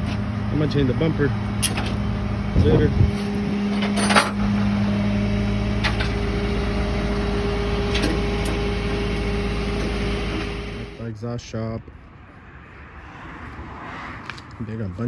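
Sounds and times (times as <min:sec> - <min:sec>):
vehicle engine idling: 0:00.0 - 0:11.1.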